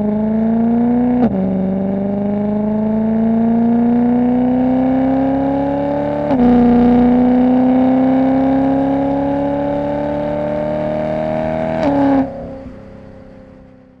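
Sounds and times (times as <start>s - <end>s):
car engine revving through gears: 0.0s - 13.3s.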